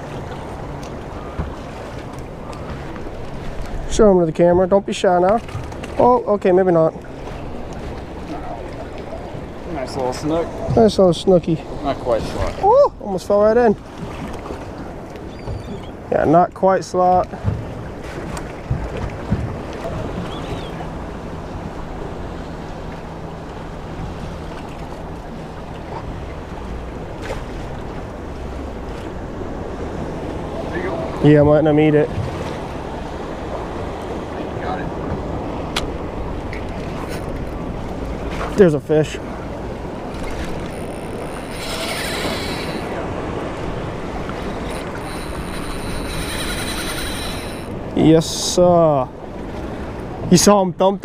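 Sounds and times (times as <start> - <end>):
water sounds: 0.0 - 51.0
wind on microphone: 39.3 - 48.0.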